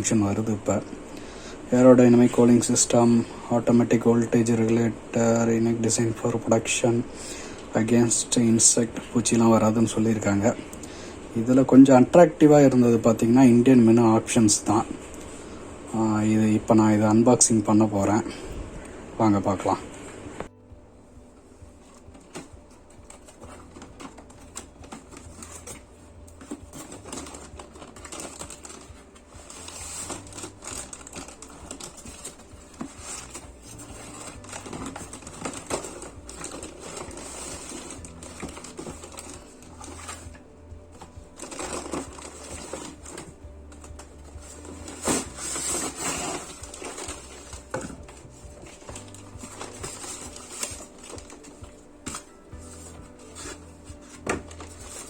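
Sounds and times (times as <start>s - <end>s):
soft background music: 0.0s - 55.0s
cardboard box being opened: 21.8s - 55.0s.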